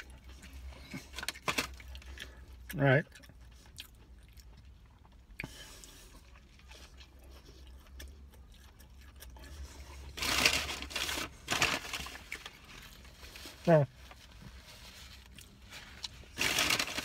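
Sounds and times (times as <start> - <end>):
close-up chewing: 0.0 - 13.4
rustling noise: 9.9 - 17.0.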